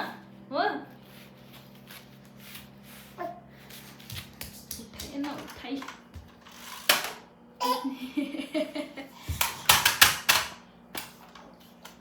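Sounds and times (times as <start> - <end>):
toys clattering: 5.2 - 7.2, 9.4 - 10.6
hard clicks and knocks of toys: 9.3 - 11.1.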